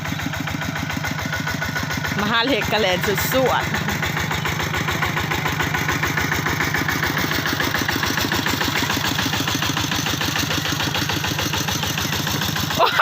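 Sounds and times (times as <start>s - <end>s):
threshing machine running: 0.0s - 13.0s.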